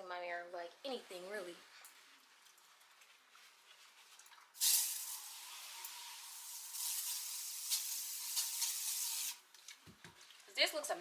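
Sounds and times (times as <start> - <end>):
spray bottle hissing: 4.6 - 5.5, 6.2 - 9.4.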